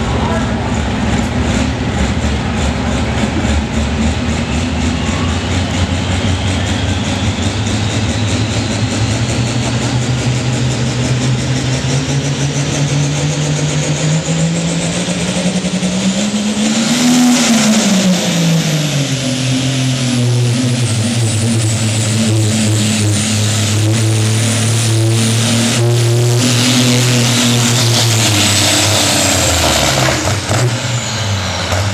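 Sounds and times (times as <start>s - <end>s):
high turbo whistle: 0.0s - 10.1s
diesel truck engine under load: 0.0s - 31.9s.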